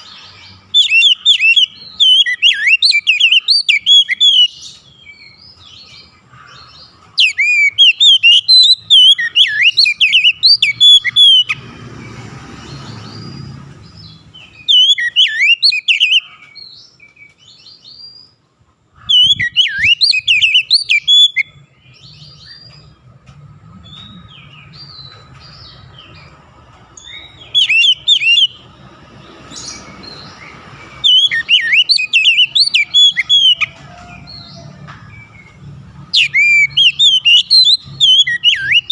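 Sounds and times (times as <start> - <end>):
bird singing whistled phrases: 0.7 - 5.3, 7.2 - 11.6, 14.4 - 16.3, 19.1 - 22.6, 27.0 - 28.6, 31.0 - 33.7, 36.1 - 38.9.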